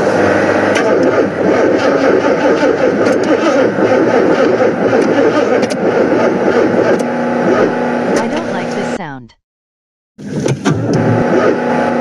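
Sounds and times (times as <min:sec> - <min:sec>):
car engine cranking: 0:00.4 - 0:08.2.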